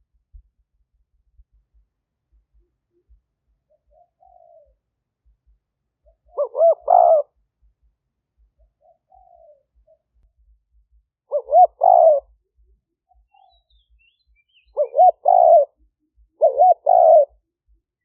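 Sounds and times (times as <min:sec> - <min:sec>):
dove cooing: 0:02.5 - 0:04.8, 0:06.0 - 0:07.4, 0:08.6 - 0:10.1, 0:11.3 - 0:14.0, 0:14.6 - 0:17.4.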